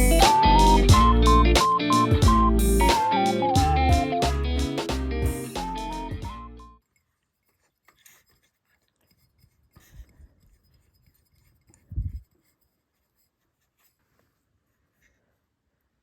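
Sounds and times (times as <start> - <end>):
guitar music: 0.0 - 6.8.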